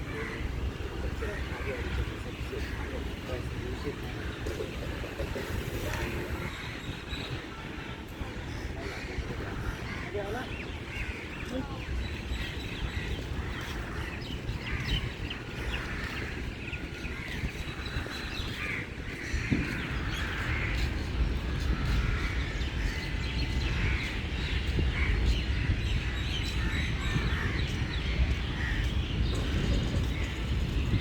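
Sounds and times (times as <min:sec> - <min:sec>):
birds calling: 0:00.0 - 0:31.0.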